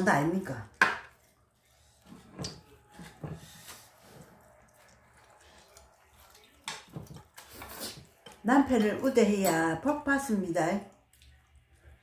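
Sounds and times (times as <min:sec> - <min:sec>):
chewing and lip-smacking: 0:04.3 - 0:08.3, 0:10.9 - 0:12.0.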